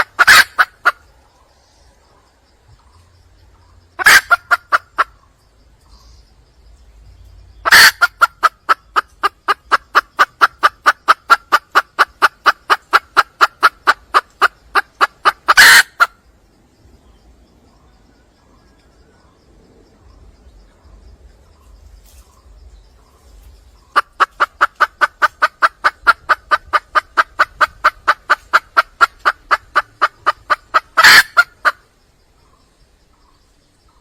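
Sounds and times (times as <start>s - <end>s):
hen clucking: 0.0s - 1.2s, 2.8s - 5.3s, 7.6s - 16.2s, 23.7s - 31.8s
hen squawking: 14.8s - 16.1s.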